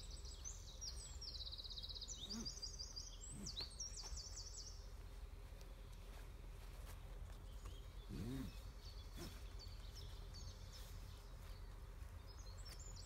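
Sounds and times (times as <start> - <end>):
songbird trilling: 0.0 - 4.8.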